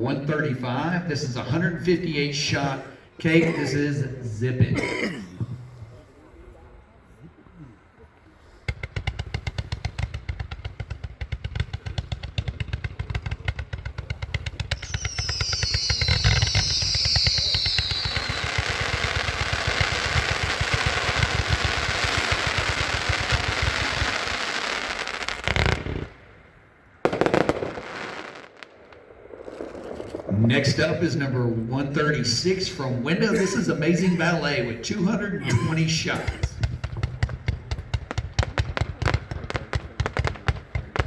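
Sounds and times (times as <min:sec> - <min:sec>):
firework crackle: 0:08.5 - 0:34.8, 0:35.7 - 0:41.0
loud firework bang: 0:08.6 - 0:24.3, 0:27.0 - 0:30.9, 0:36.2 - 0:41.0
firework cake firing shots: 0:08.6 - 0:26.1, 0:27.1 - 0:30.3, 0:35.6 - 0:41.0
firework whistle falling in pitch: 0:14.7 - 0:19.8.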